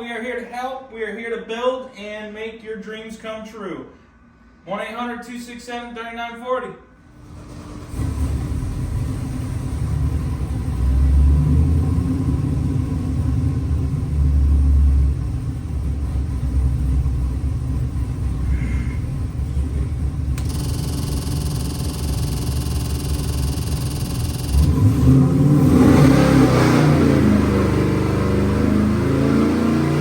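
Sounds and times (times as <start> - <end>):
engine exhaust rumbling: 7.1 - 30.0.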